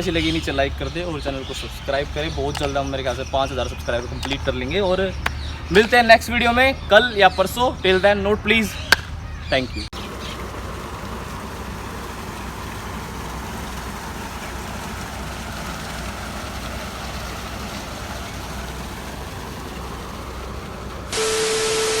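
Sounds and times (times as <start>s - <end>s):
motorcycle engine idling: 10.0s - 21.2s
steady tone with hiss: 21.1s - 22.0s.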